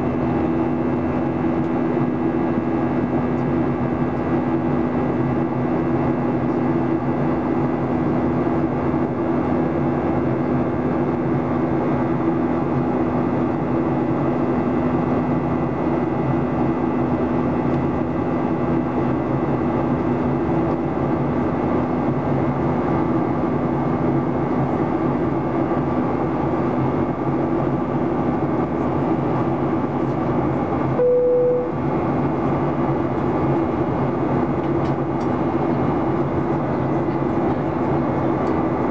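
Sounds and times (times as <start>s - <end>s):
aircraft cabin engine drone: 0.0s - 38.9s
short single tone: 31.0s - 31.8s.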